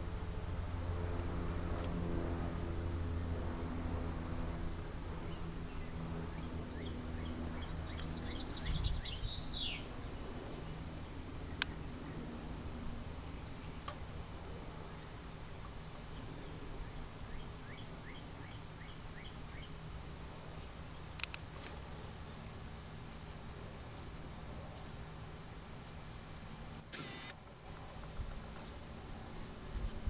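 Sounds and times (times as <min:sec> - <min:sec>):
low steady hum: 0:00.0 - 0:30.0
sharp click: 0:26.9 - 0:27.4.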